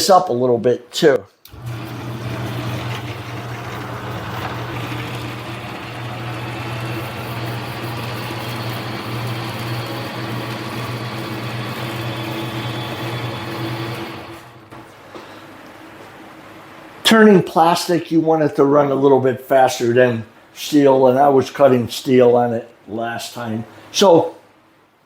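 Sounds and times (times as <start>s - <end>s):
mini lathe motor running: 1.5s - 14.8s.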